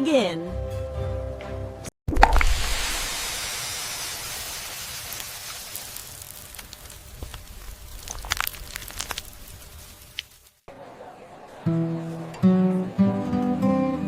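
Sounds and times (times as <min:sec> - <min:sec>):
loud even hiss: 0:02.4 - 0:07.9.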